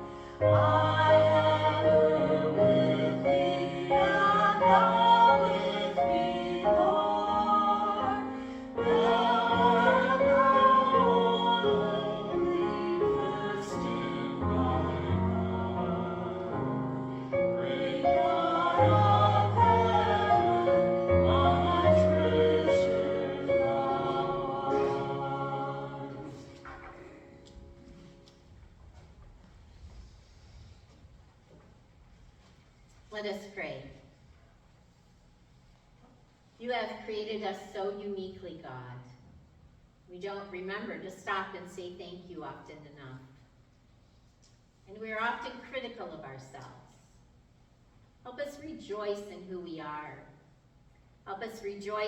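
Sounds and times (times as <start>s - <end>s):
voices singing a hymn: 0.0s - 28.1s.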